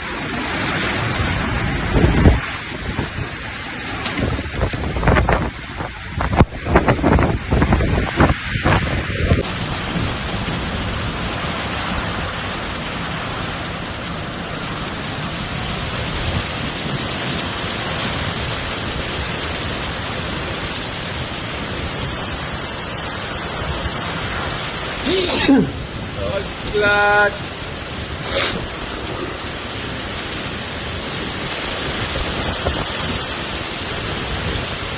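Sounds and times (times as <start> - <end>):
river rushing roar: 0.0 - 4.7, 8.3 - 34.9
wind buffeting microphone: 0.9 - 3.5, 4.1 - 12.3.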